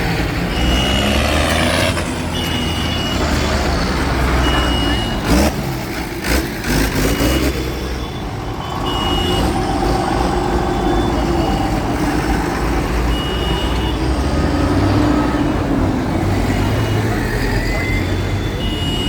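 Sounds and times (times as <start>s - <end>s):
heavy vehicle engines rumbling: 0.0s - 19.0s
short high-pitched beeps: 2.3s - 5.5s, 6.7s - 9.6s.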